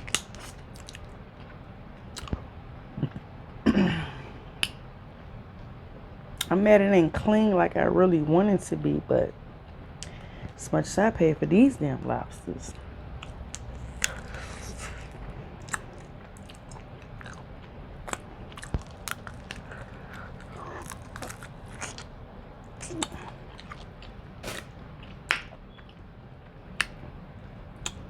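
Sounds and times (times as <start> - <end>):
chewing and mouth smacks: 0.0 - 2.5, 13.2 - 26.0, 26.7 - 27.0, 27.8 - 28.0.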